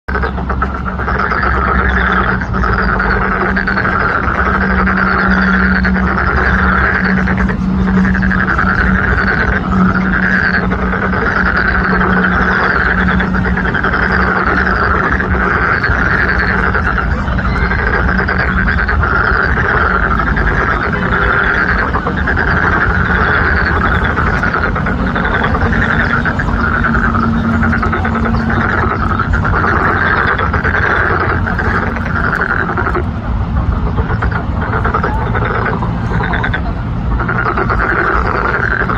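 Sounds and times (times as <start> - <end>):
frogs croaking: 0.0 - 38.9
steady low hum: 0.0 - 38.9.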